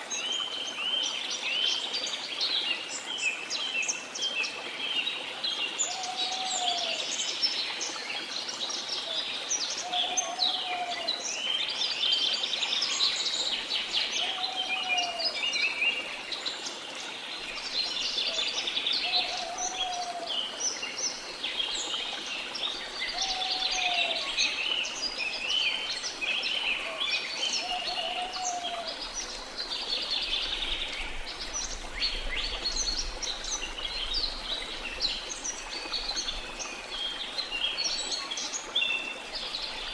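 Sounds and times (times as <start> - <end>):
birds chirping and trilling: 9.7 - 11.2, 18.0 - 21.9, 22.6 - 39.9.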